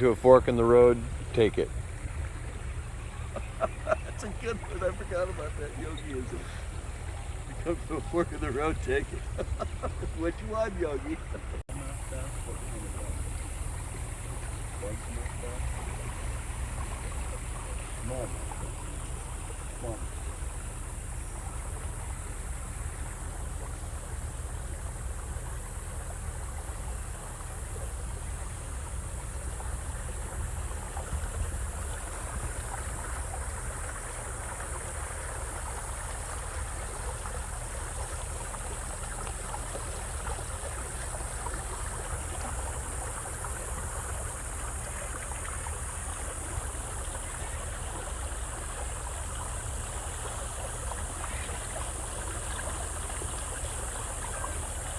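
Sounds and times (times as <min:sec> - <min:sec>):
boat motor running: 0:00.0 - 0:54.9
steady high hiss: 0:00.0 - 0:54.9
water rushing along hull: 0:00.0 - 0:54.9.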